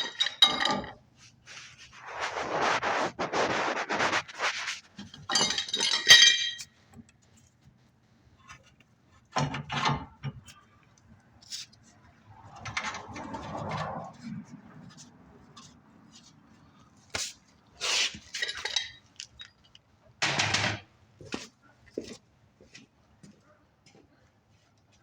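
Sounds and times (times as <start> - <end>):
metal hand tools clattering: 0.0 - 1.0, 5.3 - 6.7, 18.4 - 19.5
soft rustle: 1.2 - 5.1.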